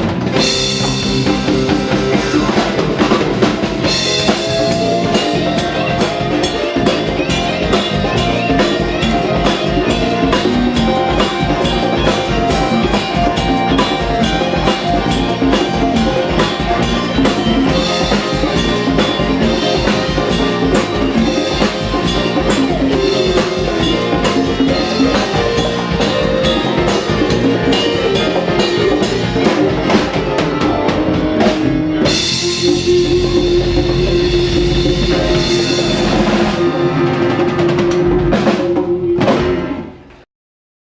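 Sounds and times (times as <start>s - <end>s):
drum kit and percussion: 0.0s - 40.2s
latin band playing: 0.0s - 40.2s.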